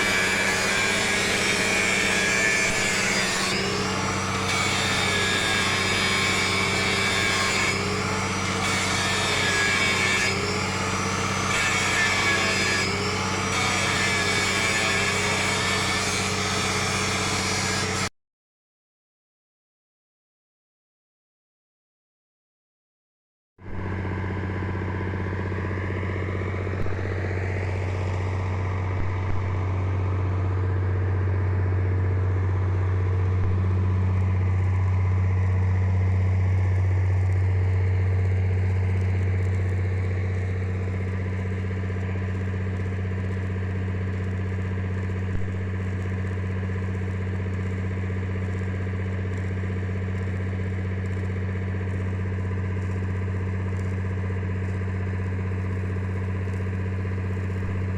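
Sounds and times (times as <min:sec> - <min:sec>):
engine idling: 0:23.7 - 0:57.9.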